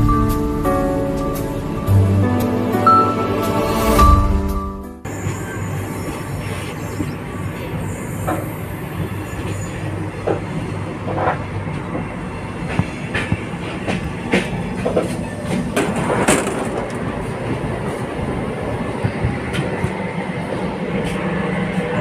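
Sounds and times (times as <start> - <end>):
train coach rumble: 0.0 - 22.0
wheels clacking over rails: 10.2 - 18.0.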